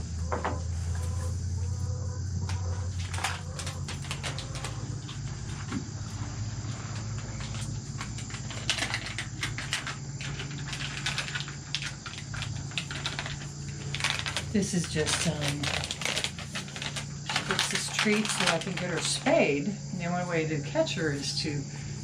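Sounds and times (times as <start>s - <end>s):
steady low hum: 0.0s - 22.0s
cat crunching dry food: 2.9s - 19.4s.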